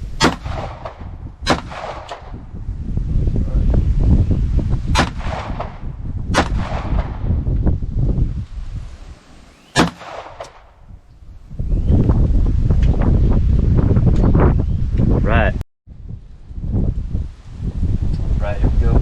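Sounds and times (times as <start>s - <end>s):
wind rumbling on microphone: 0.0s - 19.0s
gunshots: 0.2s - 2.4s, 4.9s - 7.2s, 9.6s - 10.7s.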